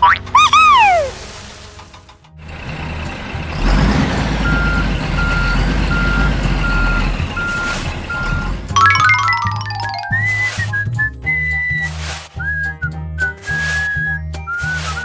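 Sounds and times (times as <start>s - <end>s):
truck engine rumbling: 0.0s - 15.0s
reversing alarm beeping: 0.3s - 1.2s, 2.5s - 10.7s.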